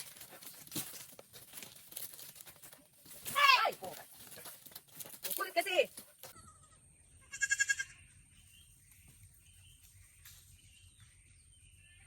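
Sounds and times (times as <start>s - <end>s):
goat bleating: 6.4s - 8.0s.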